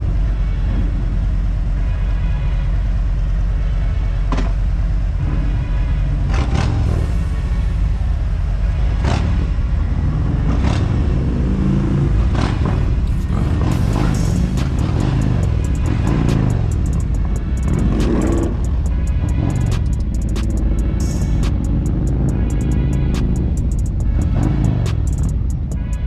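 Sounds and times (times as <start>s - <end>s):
motorcycle engine rumbling: 0.0s - 26.0s.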